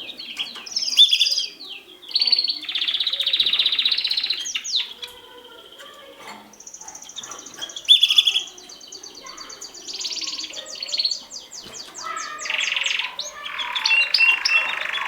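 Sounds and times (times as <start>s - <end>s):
canary singing trills: 0.0s - 15.0s.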